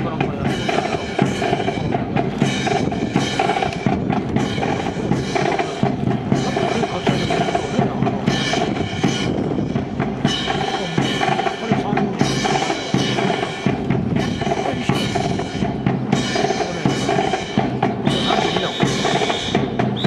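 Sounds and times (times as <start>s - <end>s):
band music: 0.0s - 20.0s
bass and snare drum beat: 0.0s - 20.0s.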